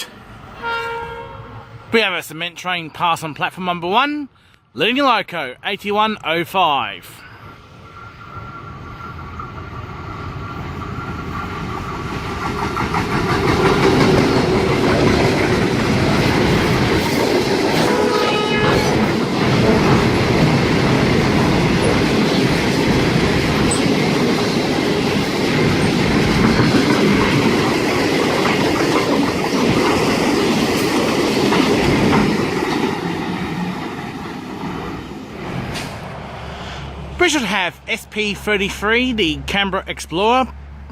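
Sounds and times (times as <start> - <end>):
diesel locomotive passing: 0.0 - 2.4, 6.8 - 40.9
train wheels clickety-clack: 9.4 - 36.0.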